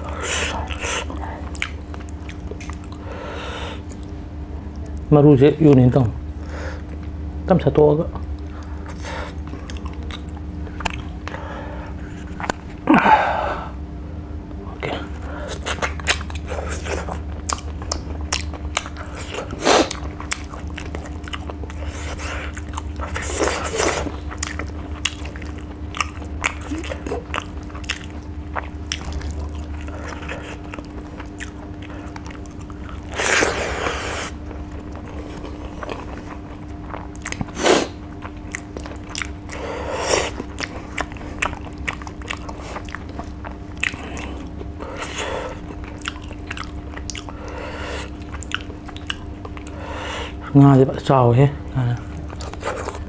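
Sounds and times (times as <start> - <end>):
steady low hum: 0.0 - 53.0
wet mouth clicks chewing: 1.5 - 3.0, 8.2 - 11.4, 15.5 - 33.5, 34.3 - 39.6, 40.3 - 49.8.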